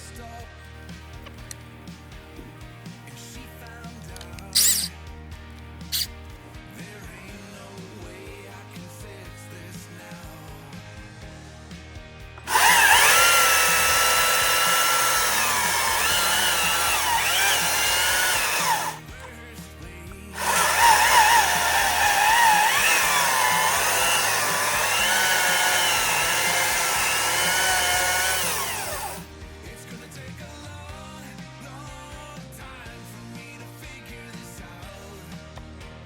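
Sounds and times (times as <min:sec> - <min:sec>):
faint background music: 0:00.0 - 0:36.0
chainsaw whine: 0:04.4 - 0:04.9, 0:05.9 - 0:06.2, 0:12.4 - 0:19.3, 0:20.4 - 0:29.3.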